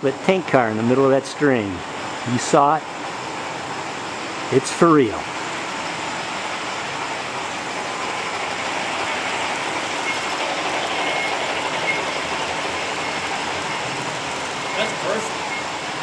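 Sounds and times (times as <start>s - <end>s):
model trains rumbling on track: 4.4s - 16.0s.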